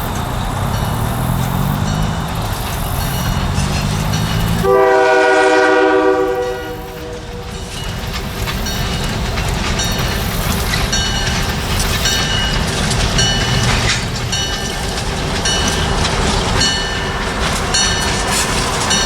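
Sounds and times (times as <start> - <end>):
train rolling and clattering on rails: 0.0 - 19.0
locomotive air horn blast: 4.6 - 7.7.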